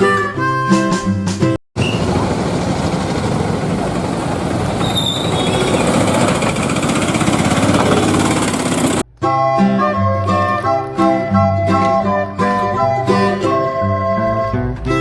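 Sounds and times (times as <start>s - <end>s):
music: 0.0s - 1.6s, 9.0s - 15.0s
rapid mechanical rattle: 2.1s - 9.0s.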